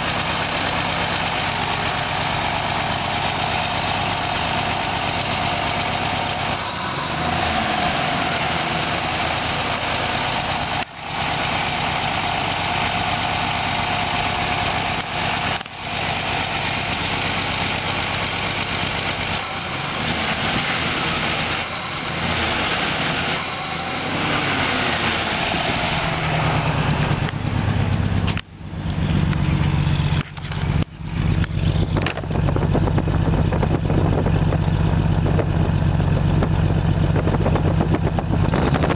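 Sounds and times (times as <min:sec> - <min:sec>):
engine idling roughly and misfiring: 0:00.0 - 0:38.9.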